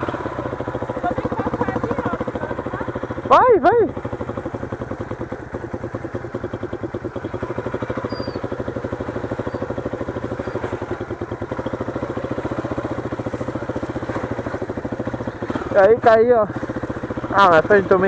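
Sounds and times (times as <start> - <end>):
motorcycle engine pulsing at low revs: 0.0 - 18.0.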